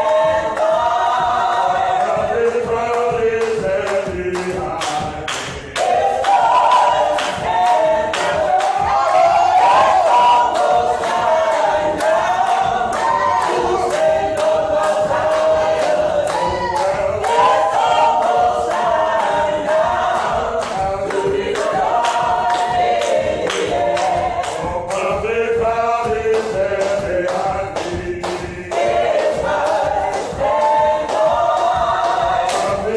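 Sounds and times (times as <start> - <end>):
choir singing in harmony: 0.0 - 32.9
steady sharp beat: 0.0 - 32.9.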